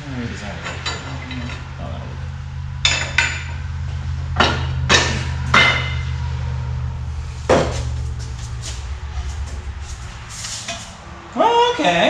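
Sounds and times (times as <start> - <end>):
steady low hum: 0.0 - 12.0
metal clanks on exhaust pipe: 0.5 - 1.8, 2.8 - 6.4.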